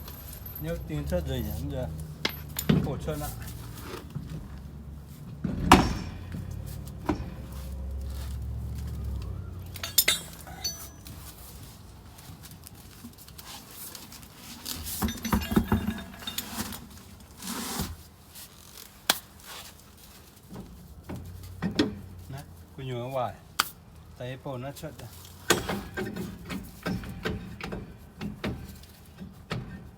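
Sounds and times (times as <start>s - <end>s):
metal tools clinking and knocking: 0.0s - 3.7s, 5.5s - 7.7s, 9.0s - 11.6s, 14.6s - 17.3s.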